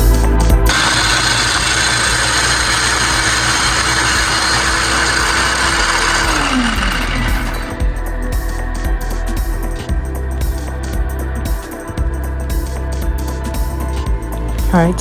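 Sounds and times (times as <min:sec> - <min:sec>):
food processor motor chopping: 0:00.7 - 0:07.8.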